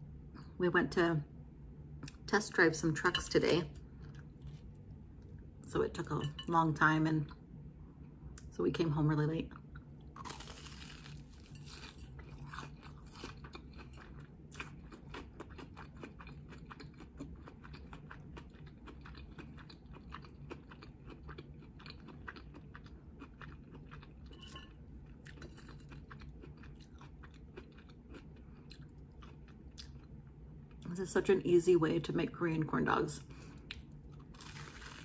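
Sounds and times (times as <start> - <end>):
person chewing crunchy food: 9.6 - 30.8, 33.5 - 35.0.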